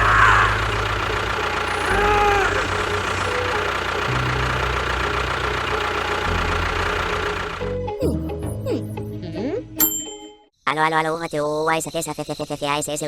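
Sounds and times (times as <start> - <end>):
small engine idling: 0.0 - 8.0.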